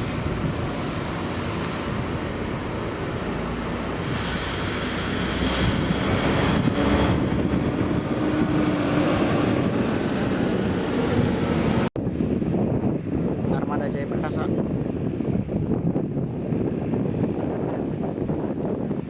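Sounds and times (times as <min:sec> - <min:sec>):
bus passing close by: 0:00.0 - 0:11.9.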